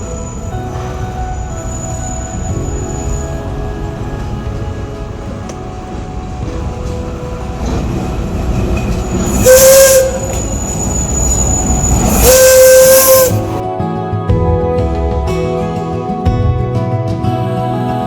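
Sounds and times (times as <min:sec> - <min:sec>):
train whistle with hissing rush: 0:00.0 - 0:05.3, 0:05.9 - 0:13.6
train rumbling: 0:00.0 - 0:13.6.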